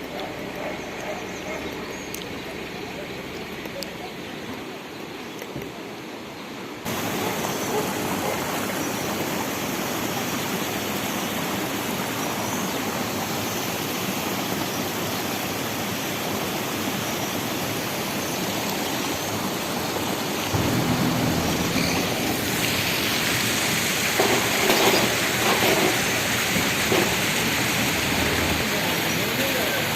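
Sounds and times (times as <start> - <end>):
waterfall rushing: 20.2 - 29.9.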